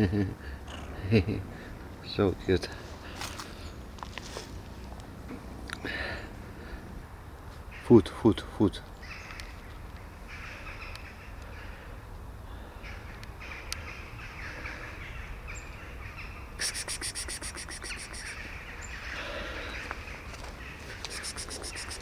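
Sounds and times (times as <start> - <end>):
birds calling: 0.0 - 22.0
crow-like caws: 0.4 - 1.0, 10.2 - 16.4, 18.1 - 22.0.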